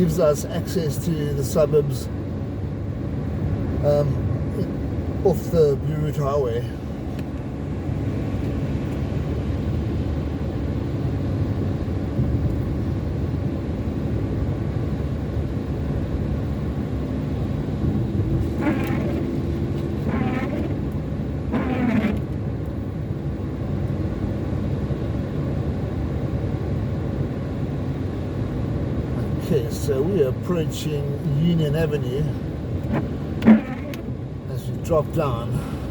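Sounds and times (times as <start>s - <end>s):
car engine and road rumble: 0.0s - 35.9s.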